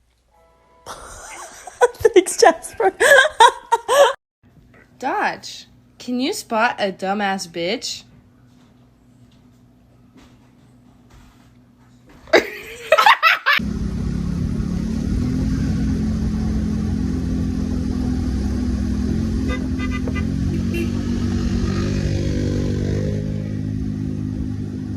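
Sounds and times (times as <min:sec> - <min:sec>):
vehicle engine running: 0:13.6 - 0:24.9.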